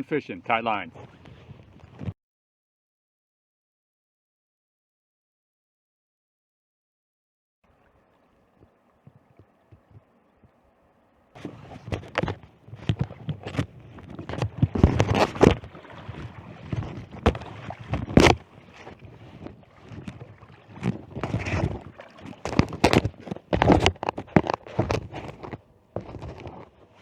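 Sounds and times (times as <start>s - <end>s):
gear knocking and scraping: 11.4s - 27.0s.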